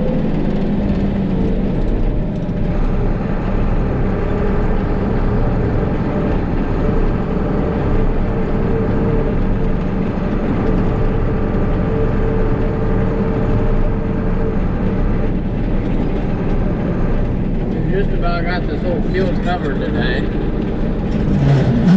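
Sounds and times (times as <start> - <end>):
farm vehicle engine under load: 0.0 - 21.9.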